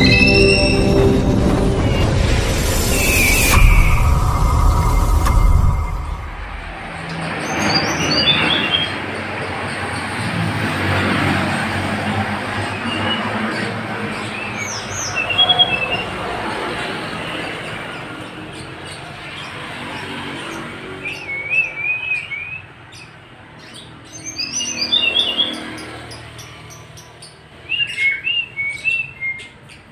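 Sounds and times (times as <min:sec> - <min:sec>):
steady rushing background noise: 0:00.0 - 0:08.0.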